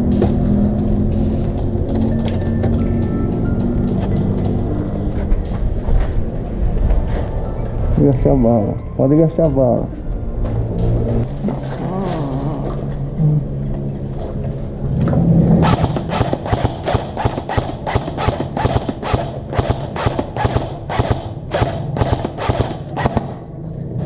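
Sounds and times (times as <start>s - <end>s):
airsoft guns firing: 15.6s - 23.4s.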